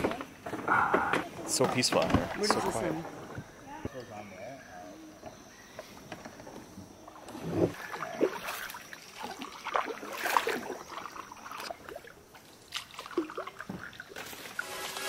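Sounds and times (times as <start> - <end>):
kayak paddles dipping in water: 5.9 - 15.0
water splashes and drips: 7.1 - 14.6.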